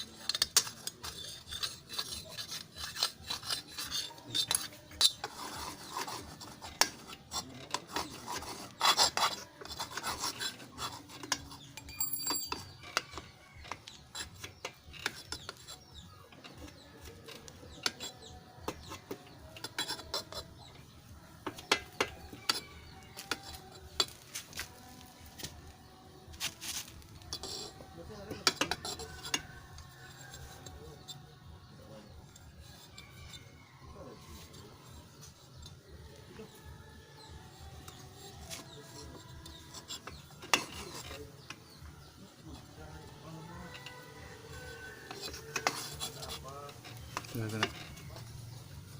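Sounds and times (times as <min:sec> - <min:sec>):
metal scraping and rubbing: 0:00.0 - 0:48.9
metal clinks and taps: 0:11.2 - 0:14.0.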